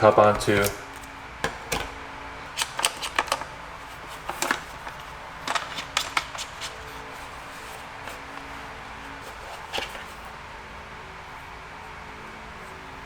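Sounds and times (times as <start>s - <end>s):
packaging clicks and rustles: 0.0s - 10.4s
faint room hum: 0.0s - 13.0s.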